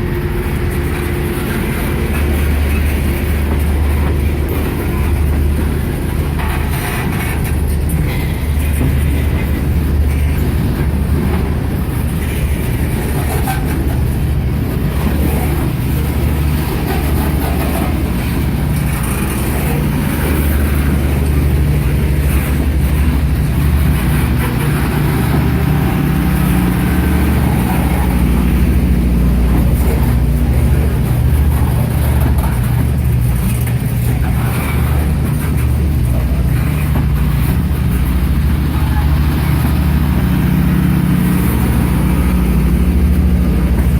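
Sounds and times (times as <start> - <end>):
freight train rumbling on rails: 0.0 - 43.9.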